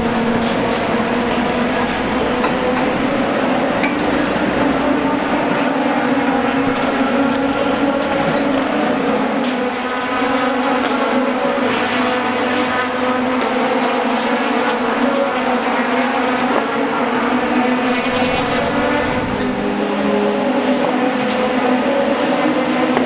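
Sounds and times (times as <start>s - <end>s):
race car engines running: 0.0s - 23.0s.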